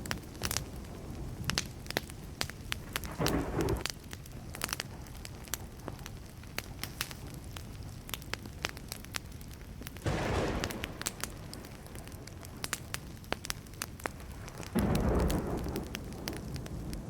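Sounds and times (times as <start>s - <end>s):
campfire crackling: 0.0s - 17.0s
fire hiss: 0.0s - 17.0s
brief rush of flames: 3.0s - 3.9s, 10.0s - 13.0s.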